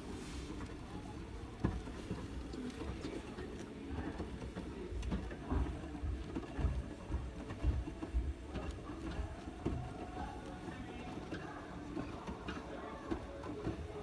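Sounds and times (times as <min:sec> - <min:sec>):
washing machine running: 0:00.0 - 0:14.0.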